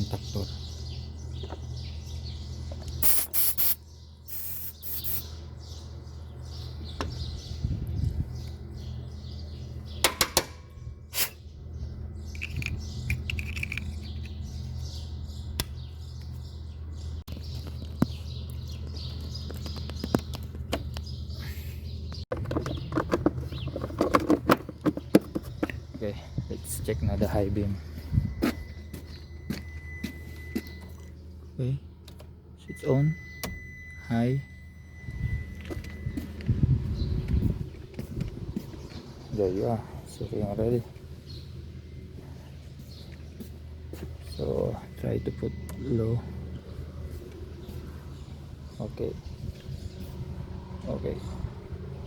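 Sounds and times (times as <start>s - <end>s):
aerosol spray hissing bursts: 3.0s - 5.2s
steady low hum: 24.6s - 52.0s.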